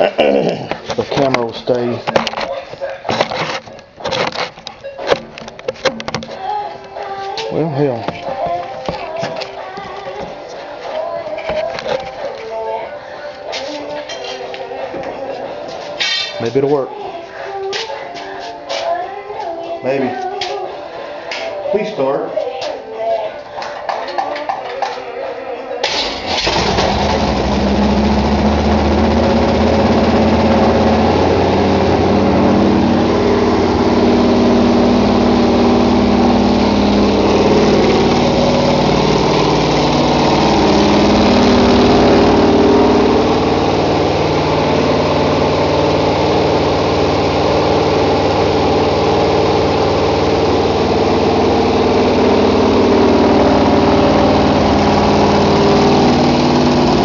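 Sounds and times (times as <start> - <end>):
car engine running at raised revs: 26.4 - 57.0.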